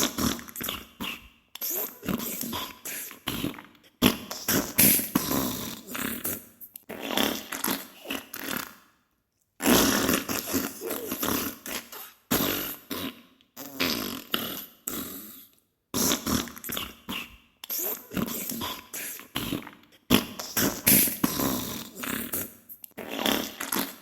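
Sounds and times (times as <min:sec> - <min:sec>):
sputtering farts: 0:03.3 - 0:08.8, 0:09.6 - 0:15.4, 0:19.4 - 0:24.0.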